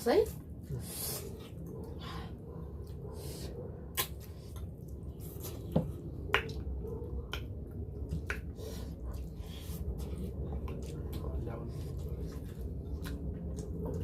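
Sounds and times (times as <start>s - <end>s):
wet lip smacks while chewing: 3.9s - 9.4s.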